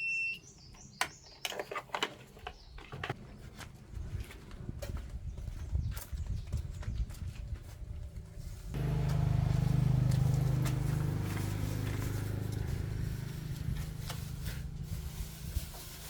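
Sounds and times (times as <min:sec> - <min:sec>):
loud steady engine drone: 0:08.8 - 0:15.8
car engine rumble: 0:08.8 - 0:16.0.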